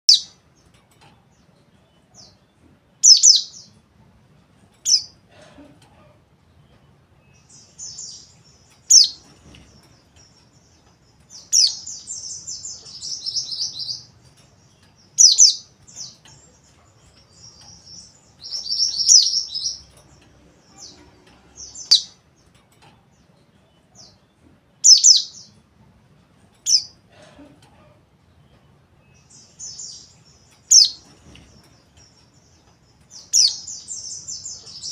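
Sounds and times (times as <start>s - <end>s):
bird high chirps: 3.0s - 3.8s, 7.3s - 22.3s, 24.8s - 25.6s, 29.1s - 34.9s.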